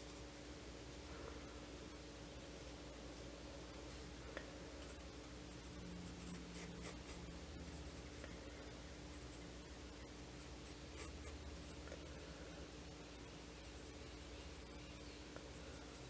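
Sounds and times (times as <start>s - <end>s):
steady low hum: 0.0s - 16.0s
pencil scratching on paper: 4.8s - 8.3s, 10.3s - 11.8s.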